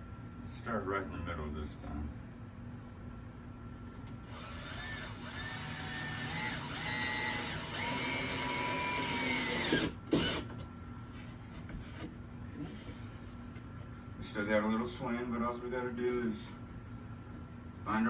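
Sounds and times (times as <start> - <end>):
cordless drill driving screw: 4.1 - 10.5.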